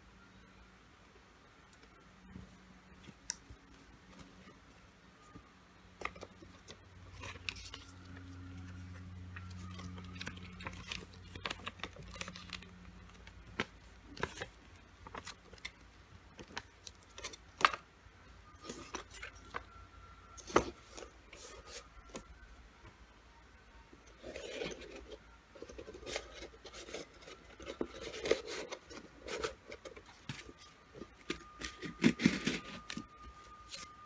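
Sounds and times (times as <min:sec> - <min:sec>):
packaging rustling and scraping: 0:06.0 - 0:15.8, 0:16.4 - 0:17.8, 0:18.5 - 0:22.4, 0:24.0 - 0:34.0.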